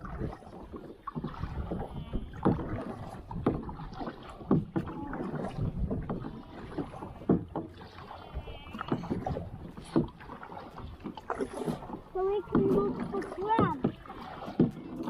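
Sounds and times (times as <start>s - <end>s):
paddles splashing in water: 0.0s - 15.0s.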